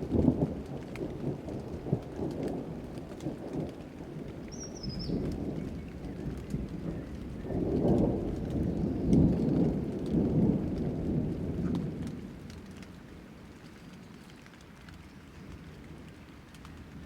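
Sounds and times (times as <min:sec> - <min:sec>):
rolling thunder: 0:00.0 - 0:12.7
raindrop ticks: 0:00.0 - 0:17.0
steady rain: 0:00.0 - 0:17.0.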